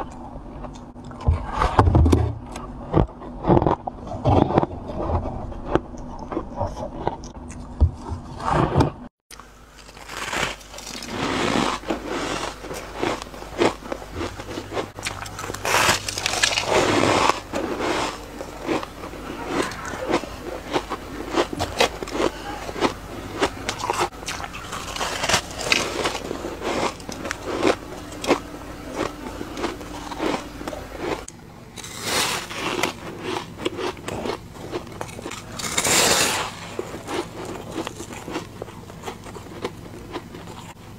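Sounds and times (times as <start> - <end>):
crunching frost: 8.6 - 40.8.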